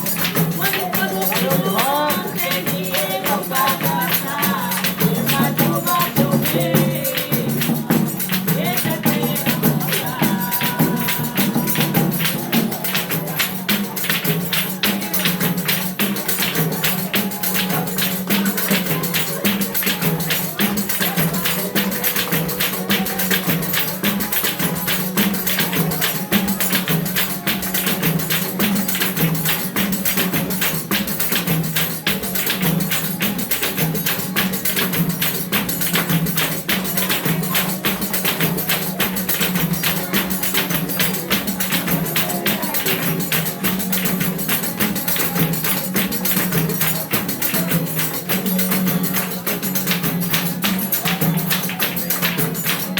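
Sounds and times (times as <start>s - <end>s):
fast percussion rhythm: 0.0s - 52.9s
tambourine jingles: 0.0s - 52.9s.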